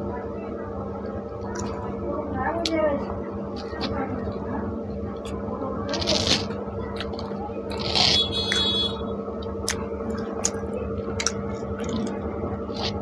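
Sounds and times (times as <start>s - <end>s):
steady low hum: 0.0s - 13.0s
chewing bread: 5.2s - 8.7s, 9.4s - 13.0s.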